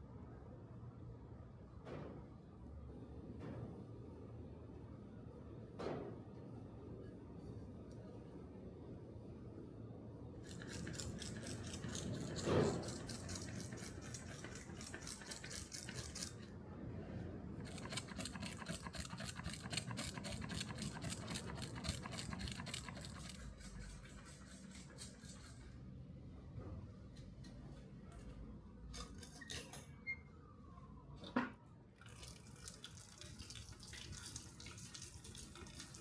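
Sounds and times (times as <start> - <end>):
abrasive rasping on metal: 10.5 - 16.4, 17.6 - 25.6.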